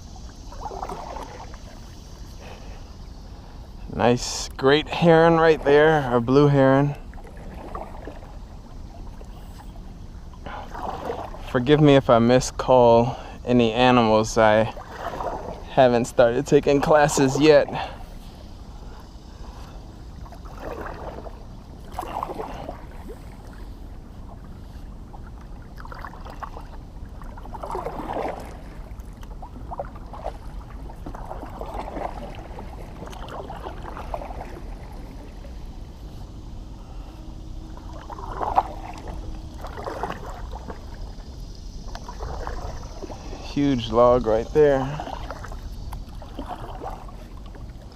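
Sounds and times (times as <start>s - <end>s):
kayak paddle splashing in water: 0.0s - 3.5s, 4.2s - 12.4s, 13.2s - 47.9s
low steady rumble: 0.0s - 47.9s.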